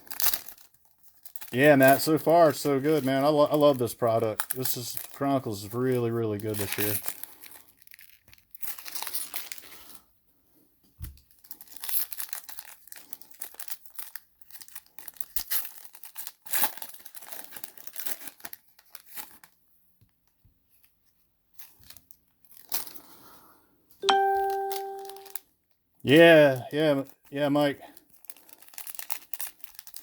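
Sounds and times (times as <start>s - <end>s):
foil wrappers tearing and crinkling: 0.0s - 10.0s, 11.2s - 19.6s, 21.6s - 23.1s, 27.9s - 30.0s.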